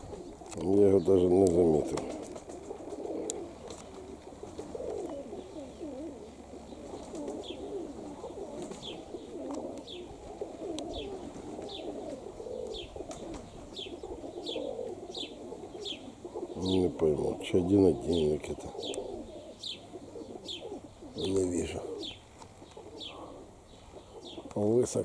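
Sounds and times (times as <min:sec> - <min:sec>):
pigeons cooing: 0:00.0 - 0:25.0
small bird chirping: 0:10.9 - 0:17.0, 0:18.7 - 0:24.6.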